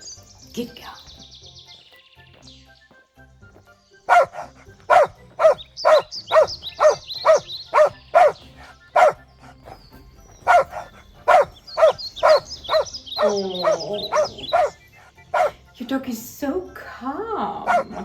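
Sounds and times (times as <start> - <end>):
dog barking: 4.1 - 15.7, 17.6 - 18.0.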